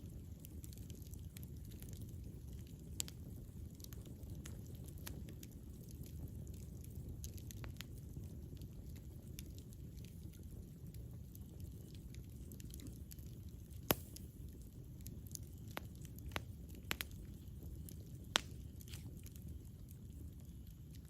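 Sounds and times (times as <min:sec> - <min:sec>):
campfire wood crackling: 0:00.0 - 0:21.0
low fire rumble: 0:00.0 - 0:21.0
sharp fire pops: 0:13.8 - 0:14.7, 0:15.3 - 0:19.4.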